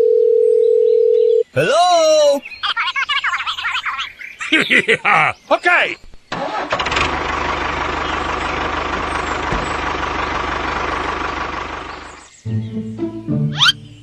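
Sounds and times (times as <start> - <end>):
truck engine chugging: 6.4 - 12.4.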